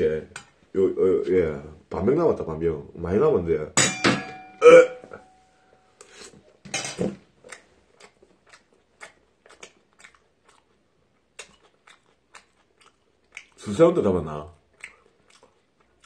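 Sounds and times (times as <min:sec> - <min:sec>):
chewing with wet mouth smacks: 0:07.4 - 0:13.7, 0:14.6 - 0:16.0.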